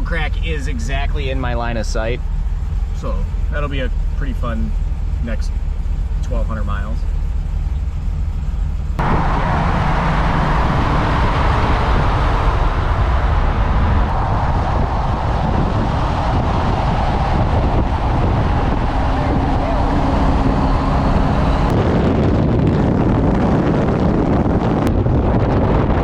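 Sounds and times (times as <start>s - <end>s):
car engine and road rumble: 0.0s - 26.0s
rushing wind: 7.2s - 26.0s.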